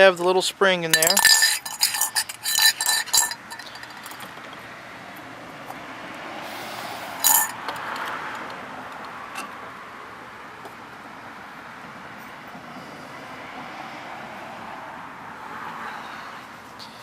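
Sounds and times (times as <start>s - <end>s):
metallic clink with ring: 0.9s - 4.3s, 7.2s - 7.6s.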